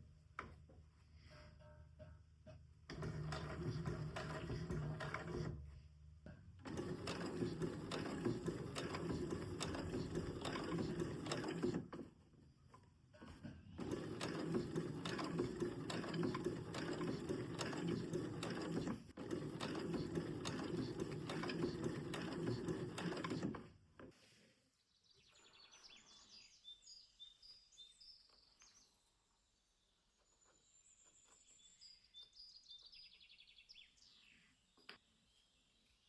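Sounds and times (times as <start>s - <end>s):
sewing machine stitching: 2.9s - 5.6s, 6.6s - 12.2s, 13.8s - 24.1s.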